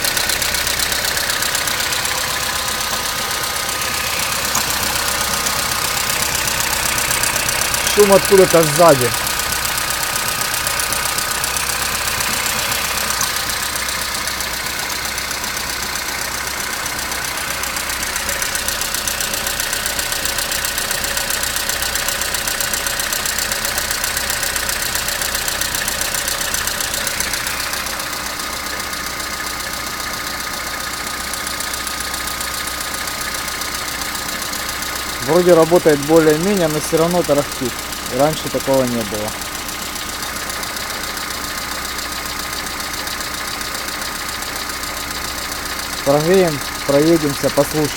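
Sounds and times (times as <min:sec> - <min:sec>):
car engine idling: 0:00.0 - 0:47.9
rattle: 0:00.0 - 0:47.9
person speaking: 0:07.8 - 0:09.3, 0:35.2 - 0:39.4, 0:46.0 - 0:47.9.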